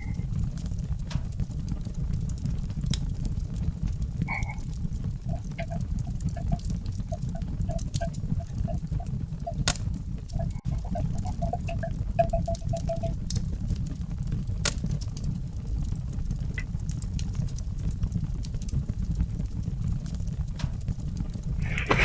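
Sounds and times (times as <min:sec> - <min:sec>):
steady low rumble: 0:00.0 - 0:19.9
frog croaking: 0:05.3 - 0:09.6, 0:10.4 - 0:13.1.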